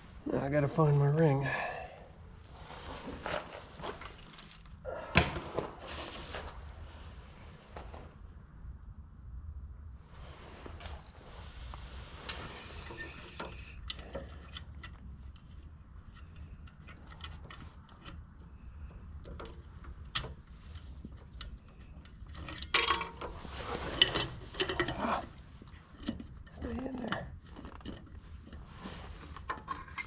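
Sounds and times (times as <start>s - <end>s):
small metal clicks and scraping: 3.8s - 4.8s, 12.2s - 30.0s.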